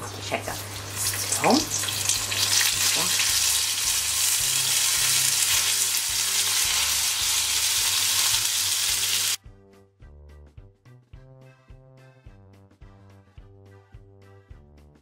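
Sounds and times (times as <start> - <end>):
tomato slices sizzling in oil: 0.0 - 9.4.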